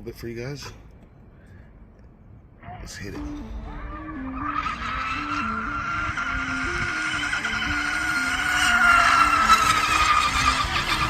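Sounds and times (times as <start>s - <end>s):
electric motor high whine: 3.4s - 11.0s.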